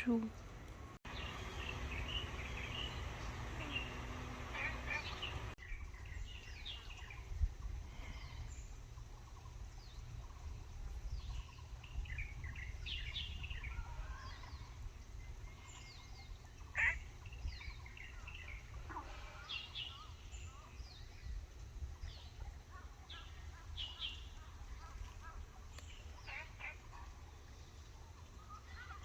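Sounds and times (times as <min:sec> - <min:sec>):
small birds chirping: 0:00.0 - 0:29.0
steady low rumble: 0:00.3 - 0:19.3.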